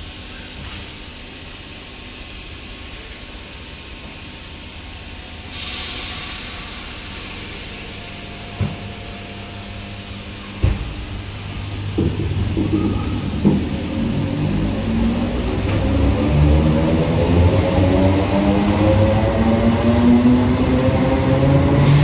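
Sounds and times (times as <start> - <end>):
train low hum: 0.0 - 22.0
hiss of released air: 5.5 - 8.6, 21.8 - 22.0.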